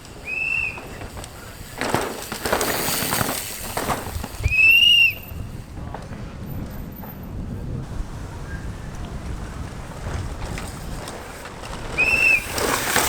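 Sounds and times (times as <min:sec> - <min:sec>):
crackling rustling noise: 0:00.0 - 0:06.3, 0:07.8 - 0:13.0
high whistled notes: 0:00.2 - 0:01.1, 0:04.4 - 0:05.5, 0:12.0 - 0:12.7.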